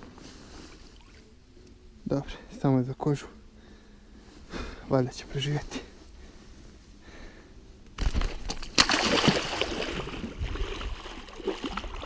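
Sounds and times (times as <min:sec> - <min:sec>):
water splashing and sloshing: 0:00.7 - 0:01.2, 0:08.0 - 0:12.0.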